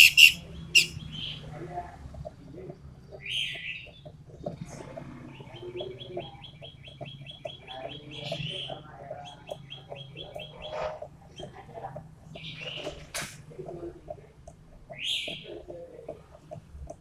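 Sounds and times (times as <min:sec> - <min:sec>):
songbird singing fast high notes: 0:00.0 - 0:01.0
lower bird chirps: 0:00.0 - 0:01.5, 0:05.2 - 0:11.6.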